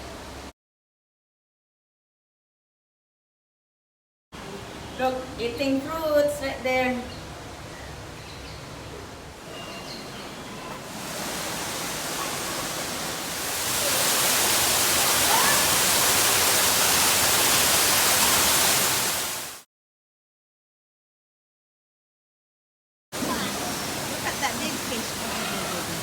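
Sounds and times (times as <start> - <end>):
rushing water hiss: 7.3 - 19.6, 23.2 - 26.0.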